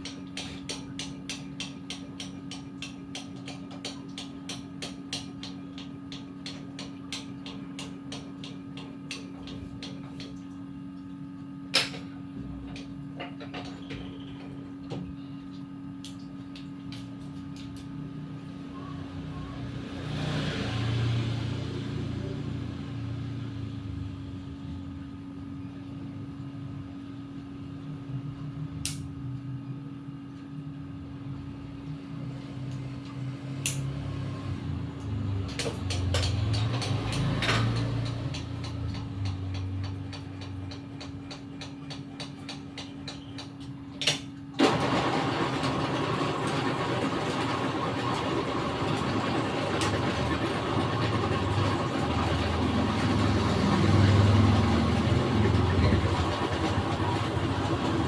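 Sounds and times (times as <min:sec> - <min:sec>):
scooter engine running: 0:33.4 - 0:41.9, 0:44.6 - 0:58.0.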